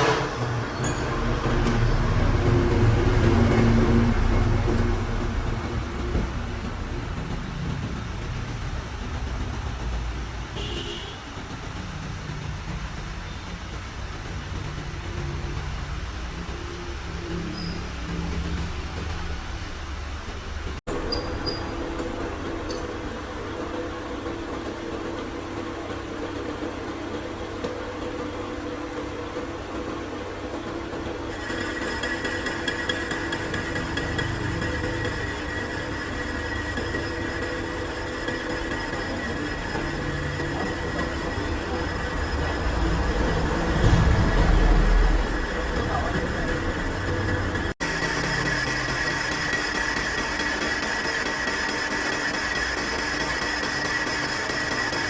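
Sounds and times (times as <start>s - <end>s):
machine humming: 0.0s - 10.0s, 11.8s - 55.0s
engine low rumble: 0.0s - 24.2s, 39.3s - 47.8s.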